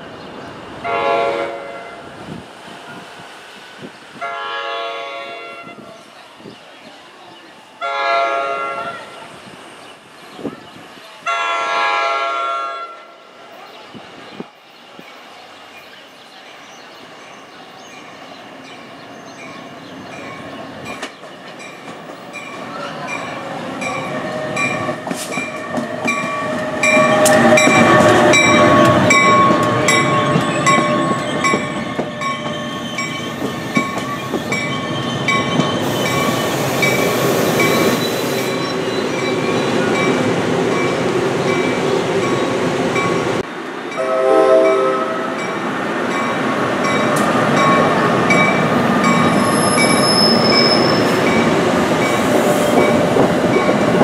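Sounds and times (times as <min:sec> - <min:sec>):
electric locomotive running: 0:20.0 - 0:54.0.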